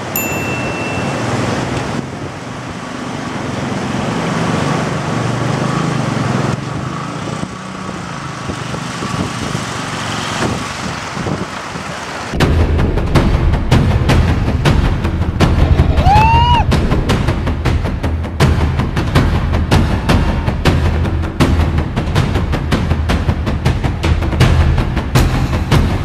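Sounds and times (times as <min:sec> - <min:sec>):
road noise: 0:00.0 - 0:26.0
vehicle engine running: 0:05.1 - 0:26.0
wind noise: 0:06.7 - 0:18.4.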